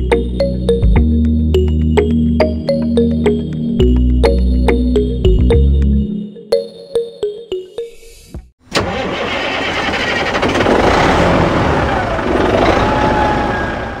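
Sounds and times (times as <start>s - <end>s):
plucked background music: 0.0s - 8.5s
engine running: 8.7s - 14.0s.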